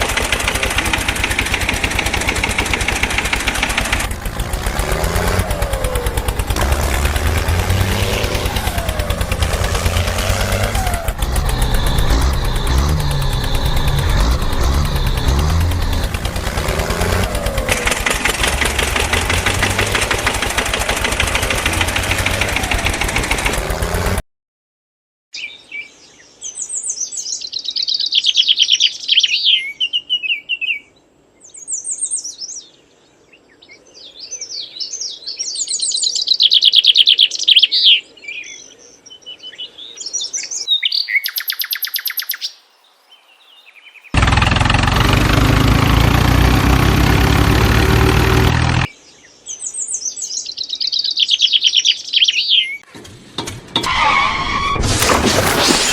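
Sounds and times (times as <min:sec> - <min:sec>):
engine running with pulsing beat: 0:00.0 - 0:24.2, 0:44.2 - 0:48.9
birds chirping and trilling: 0:03.8 - 0:17.8, 0:25.4 - 0:44.4, 0:48.8 - 0:52.9.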